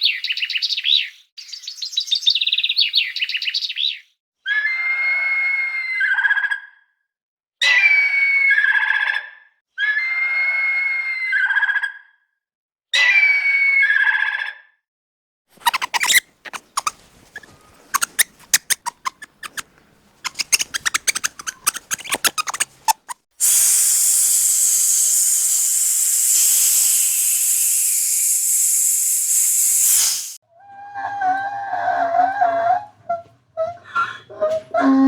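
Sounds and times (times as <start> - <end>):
animal clicks and squeaks: 15.6 - 28.7
animal hissing: 15.6 - 30.4.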